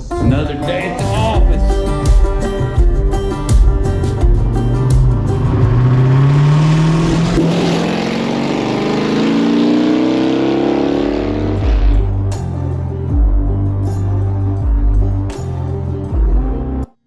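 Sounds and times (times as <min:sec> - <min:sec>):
engine accelerating hard: 0:03.5 - 0:15.4.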